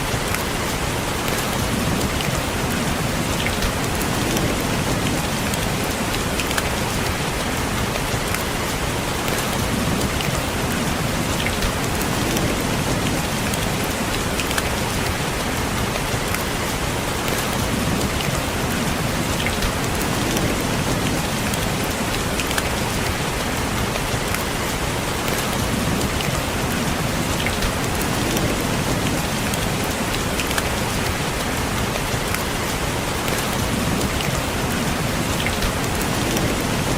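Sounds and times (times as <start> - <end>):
rain pattering on a window: 0.0 - 36.9.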